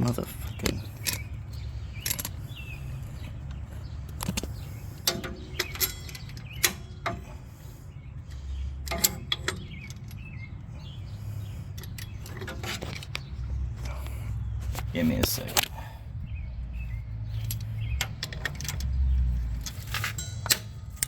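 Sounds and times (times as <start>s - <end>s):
steady low rumble: 0.0s - 21.0s
hand tools clinking on metal: 4.2s - 7.3s, 8.9s - 10.3s, 19.6s - 21.0s.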